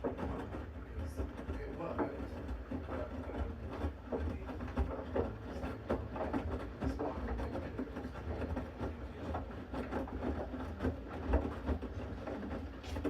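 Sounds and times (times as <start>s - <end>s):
drum tumbling wet load: 0.0s - 13.0s
washing machine humming: 0.0s - 13.0s.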